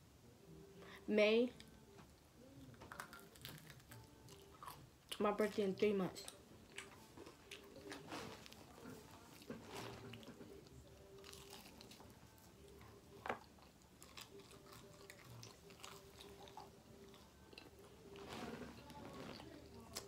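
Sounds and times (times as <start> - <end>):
chewing and biting pizza: 6.7 - 20.0.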